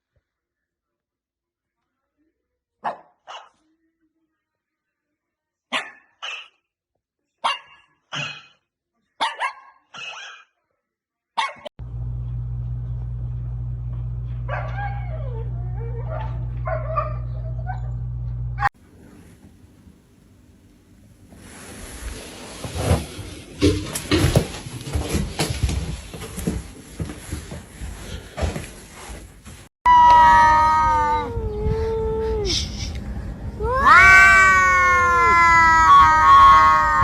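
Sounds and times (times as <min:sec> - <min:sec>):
dog barking: 0:02.8 - 0:03.6, 0:05.7 - 0:06.6, 0:07.4 - 0:08.5, 0:09.2 - 0:10.5, 0:11.4 - 0:11.7, 0:14.5 - 0:18.0
steady low hum: 0:11.8 - 0:21.4.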